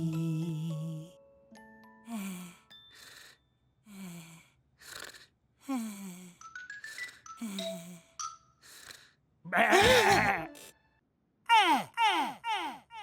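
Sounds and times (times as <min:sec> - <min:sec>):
cartoon characters breathing asleep: 0:02.1 - 0:09.3.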